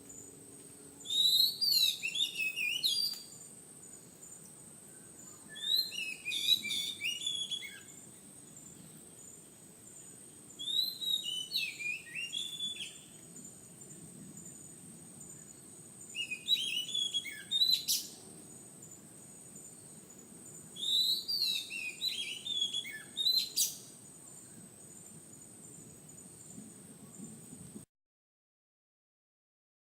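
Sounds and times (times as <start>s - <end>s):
bird singing whistled notes: 1.0s - 9.4s, 10.0s - 13.6s, 14.3s - 18.2s, 20.7s - 24.6s.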